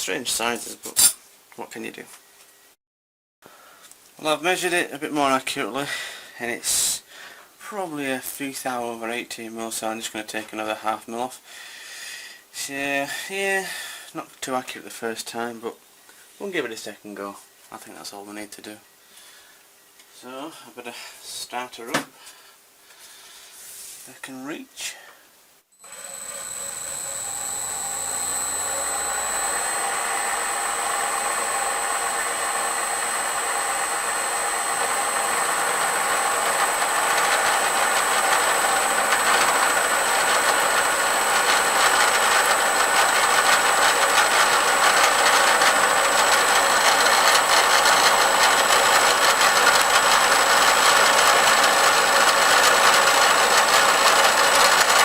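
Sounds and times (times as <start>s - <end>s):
fly cutter cutting steel: 25.8s - 55.0s
milling machine motor whine: 25.8s - 55.0s.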